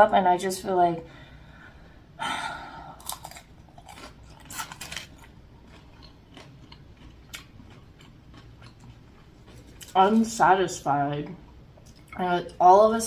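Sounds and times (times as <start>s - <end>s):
person biting and chewing food: 2.9s - 10.0s.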